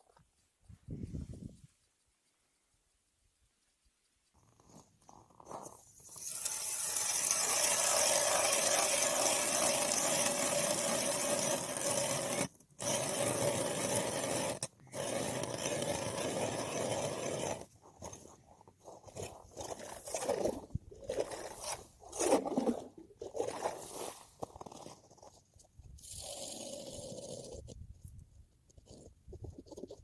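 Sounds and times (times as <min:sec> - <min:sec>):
ice auger grinding through ice: 0:04.6 - 0:27.8.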